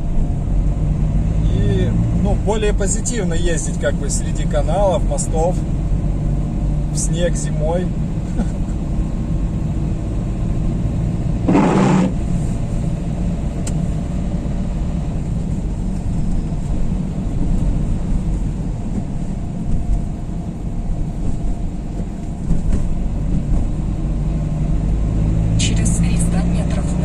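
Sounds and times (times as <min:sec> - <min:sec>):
car engine and road noise: 0:00.0 - 0:27.0
short whoosh: 0:11.5 - 0:12.6.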